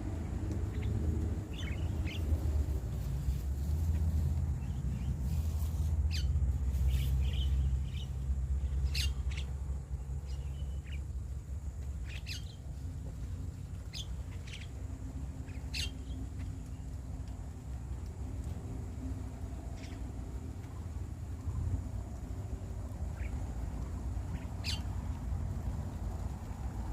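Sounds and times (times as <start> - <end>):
low steady rumble: 0.0 - 26.9
starlings chirping and squawking: 0.7 - 2.5, 4.6 - 9.6, 12.0 - 12.6, 13.9 - 14.8, 15.4 - 16.8, 24.3 - 24.9.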